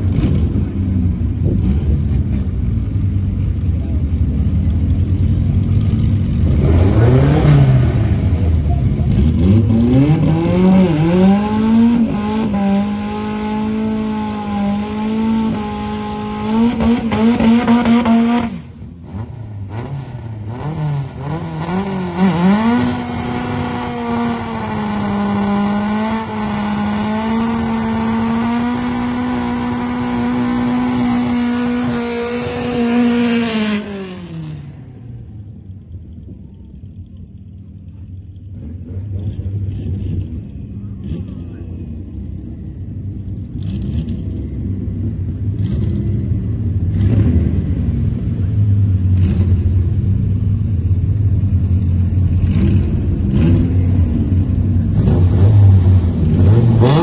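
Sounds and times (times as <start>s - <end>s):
engine revving high: 6.4s - 34.9s, 54.9s - 57.0s.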